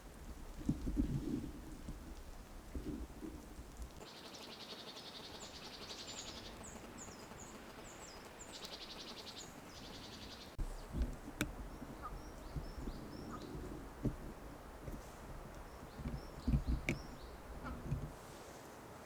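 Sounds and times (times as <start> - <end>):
bird buzzing trill: 3.7 - 18.2
high bird chirps: 4.1 - 11.0.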